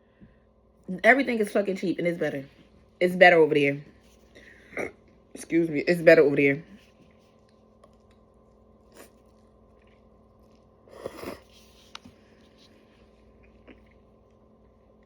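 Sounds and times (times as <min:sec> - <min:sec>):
soft chewing: 0:06.7 - 0:15.0.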